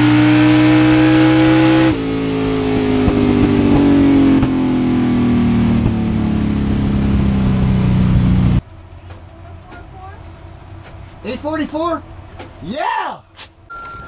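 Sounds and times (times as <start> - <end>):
racing car engine winding down: 0.0 - 8.6.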